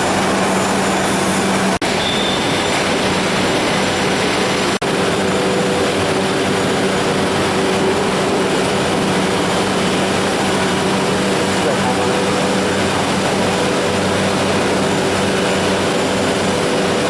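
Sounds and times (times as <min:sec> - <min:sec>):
drilling machine running: 0:00.0 - 0:17.0.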